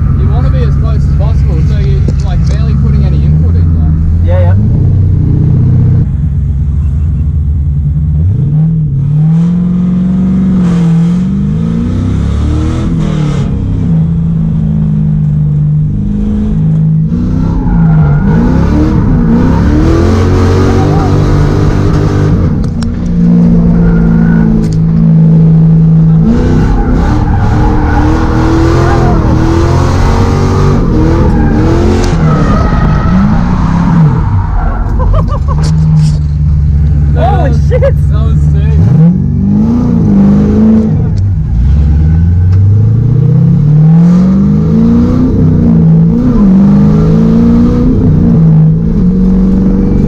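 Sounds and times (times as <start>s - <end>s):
car engine revving hard: 8.2s - 14.9s, 15.8s - 36.1s, 37.0s - 50.0s.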